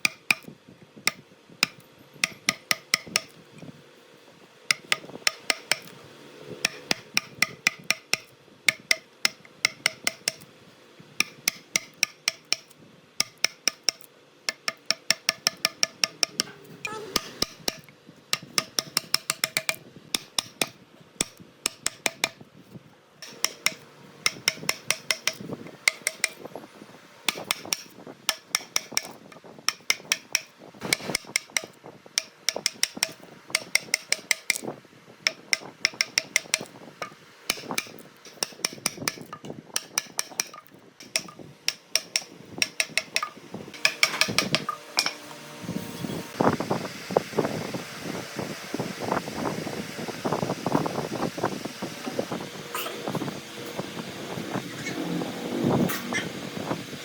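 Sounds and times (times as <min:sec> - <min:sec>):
hammer strikes ringing: 0:01.1 - 0:03.4.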